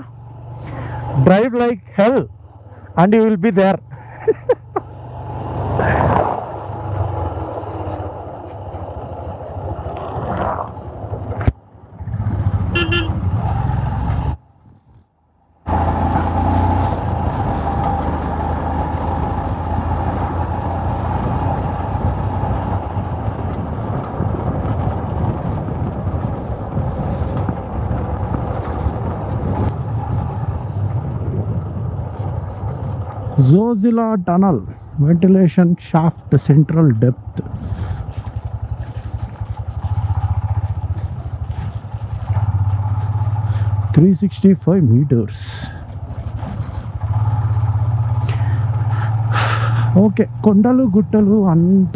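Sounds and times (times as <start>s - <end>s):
wind and road noise: 0.0s - 51.9s
motorcycle engine running: 4.5s - 33.6s, 37.2s - 44.6s, 45.4s - 51.8s
vehicle horn: 12.7s - 13.3s.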